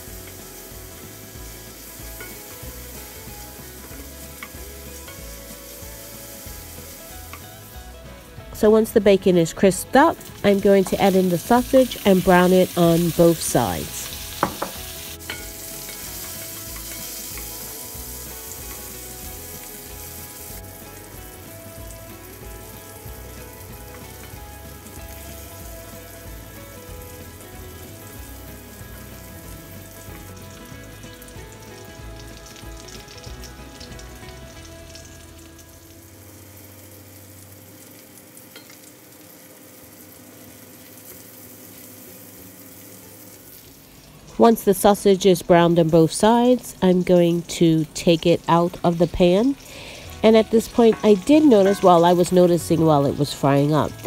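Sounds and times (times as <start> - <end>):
sausage and bacon sizzling: 0.0 - 54.0.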